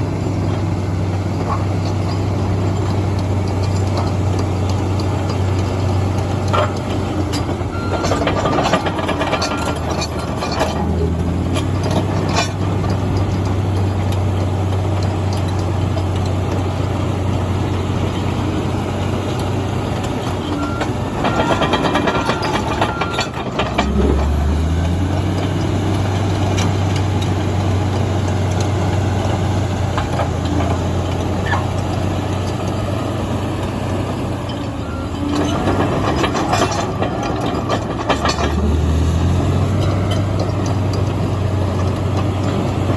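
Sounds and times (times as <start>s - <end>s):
bulldozer diesel engine running: 0.0s - 42.9s
steel tracks clanking: 1.4s - 14.2s, 20.0s - 27.4s, 33.9s - 42.9s.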